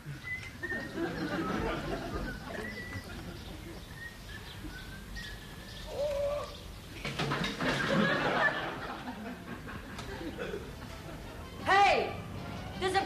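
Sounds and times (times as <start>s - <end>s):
birds singing: 0.0s - 7.2s.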